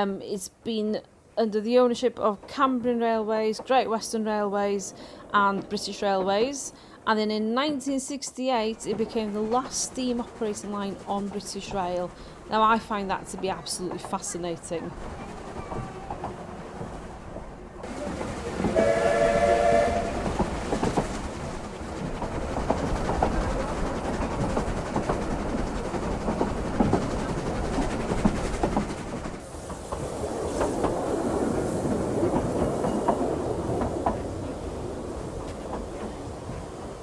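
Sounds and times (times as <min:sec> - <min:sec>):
train rumble: 0:01.5 - 0:37.0
wheels clicking over rail joints: 0:02.2 - 0:06.6, 0:08.6 - 0:37.0
steam whistle blast: 0:18.7 - 0:20.3.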